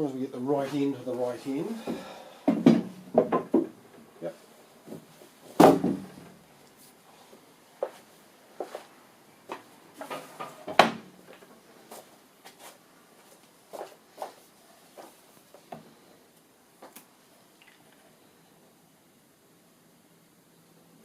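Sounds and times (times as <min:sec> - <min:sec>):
heavy timber knocking: 0:01.9 - 0:03.8.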